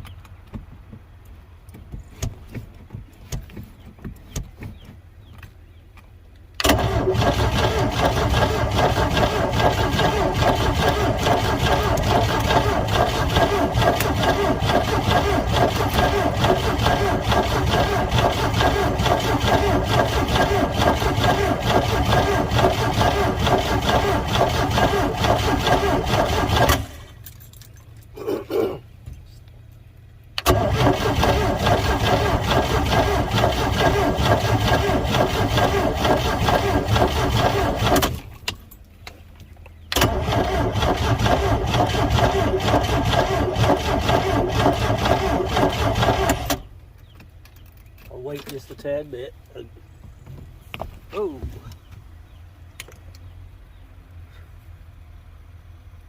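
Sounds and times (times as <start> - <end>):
boat engine cranking: 6.6 - 27.7, 30.4 - 38.4, 39.9 - 46.7.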